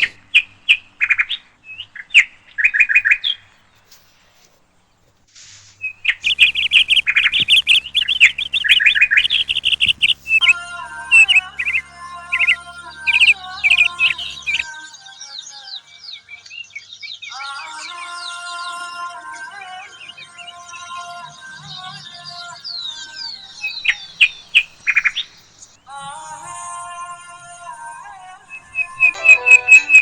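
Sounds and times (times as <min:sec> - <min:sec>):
small birds chirping: 0:00.0 - 0:26.9
steady low hum: 0:03.4 - 0:15.1, 0:19.2 - 0:30.0.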